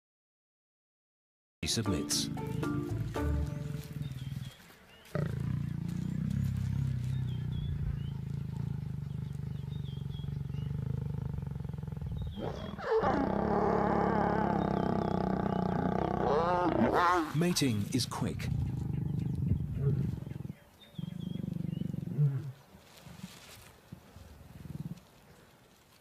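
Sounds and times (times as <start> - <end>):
lion growling: 3.1 - 17.4, 18.1 - 22.6
lion snarling growl: 3.8 - 17.4, 18.3 - 22.6.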